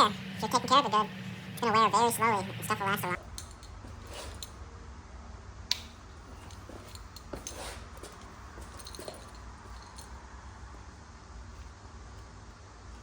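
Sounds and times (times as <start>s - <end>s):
steady low hum: 0.0s - 13.0s
small metal parts clicking: 3.3s - 4.6s.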